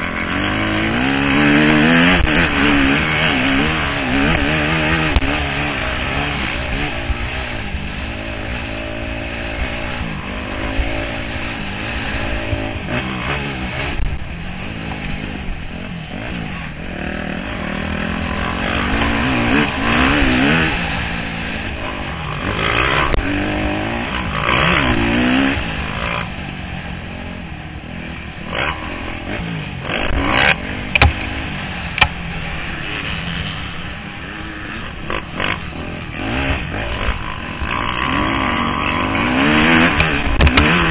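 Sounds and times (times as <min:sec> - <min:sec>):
motocross bike engine revving: 0:00.0 - 0:40.9
sharp knocks: 0:30.9 - 0:31.2.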